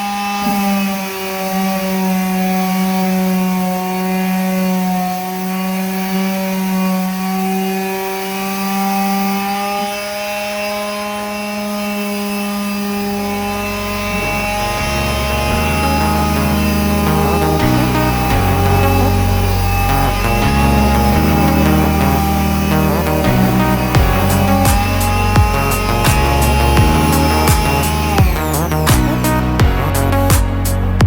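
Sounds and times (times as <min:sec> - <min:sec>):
power tool humming: 0:00.0 - 0:31.0
low rumble: 0:13.3 - 0:31.0.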